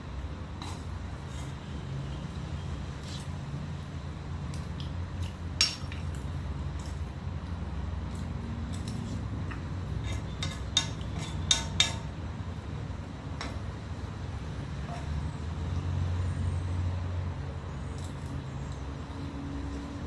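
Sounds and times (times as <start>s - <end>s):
utensil clinking against dish: 5.6s - 6.1s, 8.7s - 12.2s.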